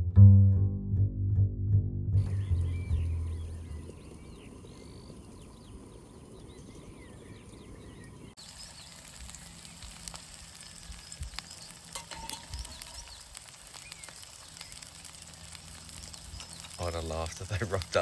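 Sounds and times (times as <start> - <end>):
low rumble: 0.0 - 8.4
faint chirps: 2.2 - 18.0
food sizzling in a pan: 8.4 - 18.0.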